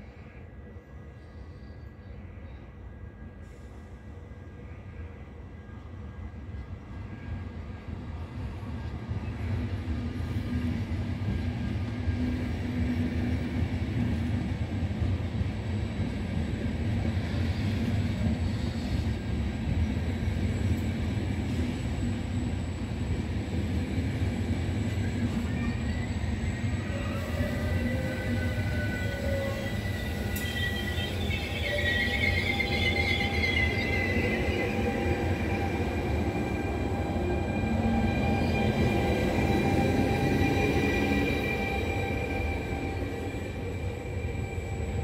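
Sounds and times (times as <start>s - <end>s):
train wheels rumbling on rails: 6.4s - 45.0s
high squealing tones: 26.9s - 35.5s.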